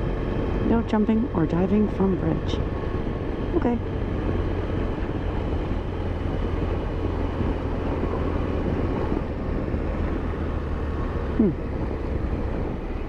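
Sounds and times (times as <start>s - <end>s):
motorcycle engine cruising: 0.0s - 13.0s
road and wind noise: 0.0s - 13.0s.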